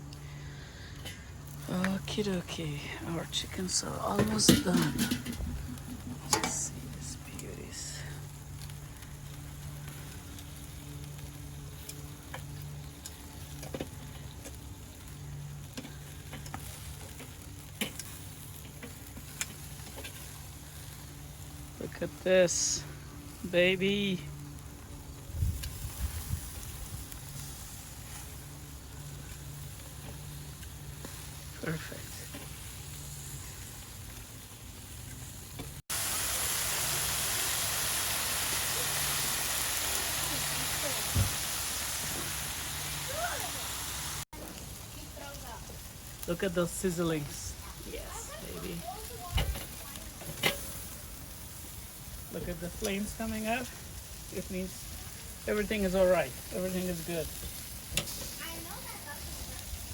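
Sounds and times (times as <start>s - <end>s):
low hum: 0.0s - 35.8s
chicken wings sizzling on a grill: 0.0s - 59.9s.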